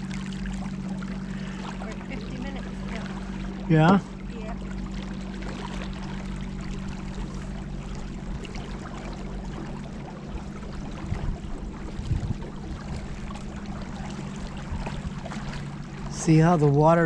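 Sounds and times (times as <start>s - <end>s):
river water rushing around boat: 0.0s - 17.0s
steady low hum: 0.0s - 17.0s.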